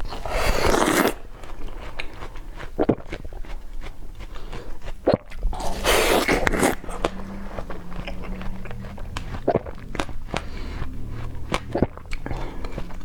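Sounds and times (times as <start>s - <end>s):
person crunching ice: 0.1s - 7.2s.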